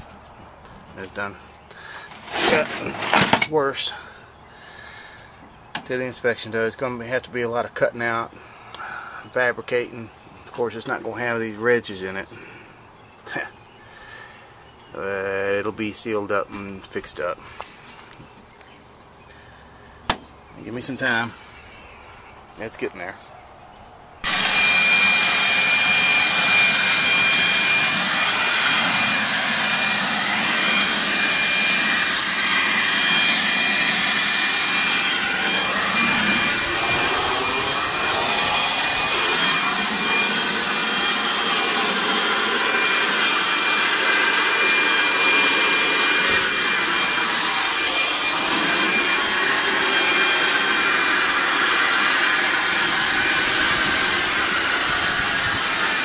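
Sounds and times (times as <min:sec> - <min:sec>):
motor with rushing air and whine: 0:24.2 - 0:56.0.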